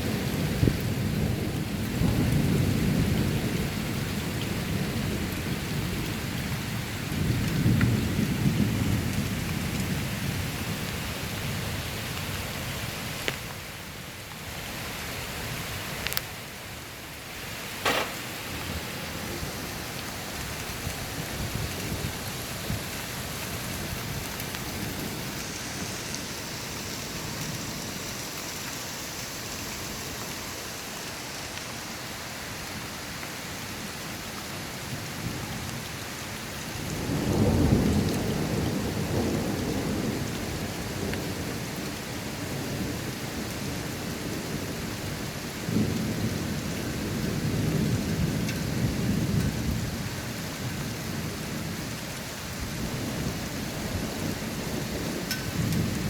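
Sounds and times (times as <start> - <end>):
deep thunder rumble: 0.0 - 11.0, 36.8 - 41.6, 52.9 - 56.0
steady rain falling: 0.0 - 56.0.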